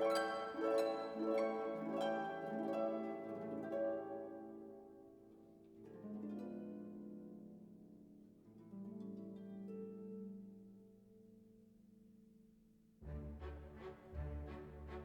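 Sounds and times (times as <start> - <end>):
gentle plucked melody: 0.0 - 10.9.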